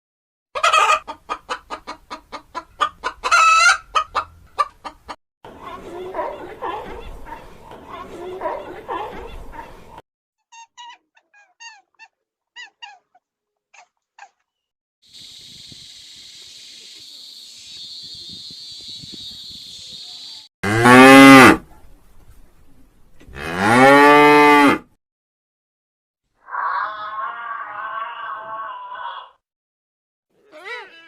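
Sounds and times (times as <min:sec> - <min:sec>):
steady high hiss: 0:15.1 - 0:20.4
faint high chirps: 0:15.1 - 0:20.5
cow mooing: 0:20.6 - 0:21.6, 0:23.3 - 0:24.8.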